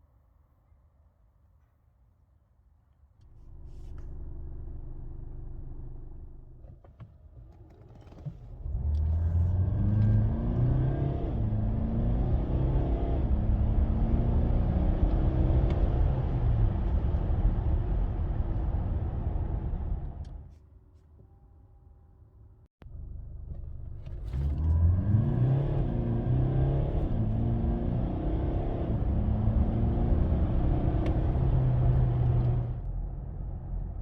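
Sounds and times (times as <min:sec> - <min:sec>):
diesel engine accelerating: 0:08.6 - 0:20.4, 0:22.9 - 0:34.0.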